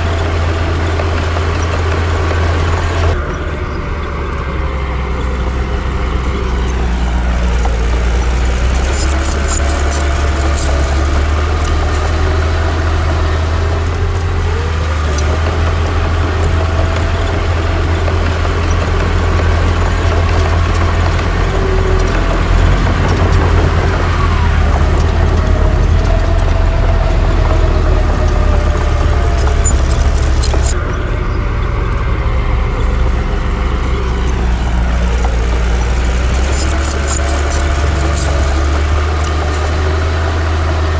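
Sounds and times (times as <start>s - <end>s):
diesel machinery engine drone: 0.0s - 40.9s
faint clicks: 5.1s - 31.0s.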